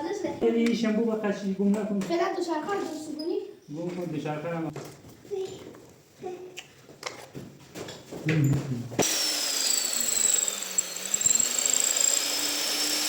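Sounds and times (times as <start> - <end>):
power drill motor whine: 9.0 - 13.0.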